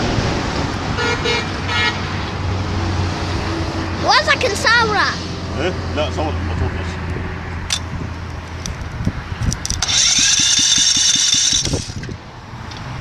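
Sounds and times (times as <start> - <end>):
loud high whine: 9.6 - 12.5.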